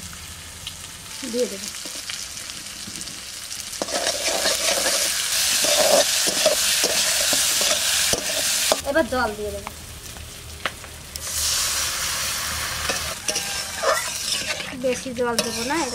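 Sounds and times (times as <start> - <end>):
potatoes sizzling in hot oil: 0.0 - 15.9
metal spatula scraping pan: 3.8 - 8.8, 12.6 - 15.9.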